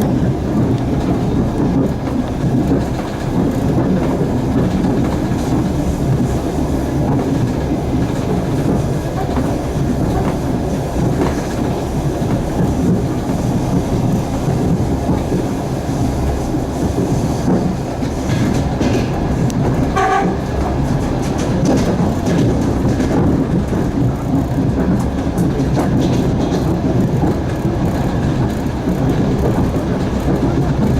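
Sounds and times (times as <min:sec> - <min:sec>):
train wheels rumbling on rails: 0:00.0 - 0:30.9
clicks over rail joints: 0:17.4 - 0:30.9.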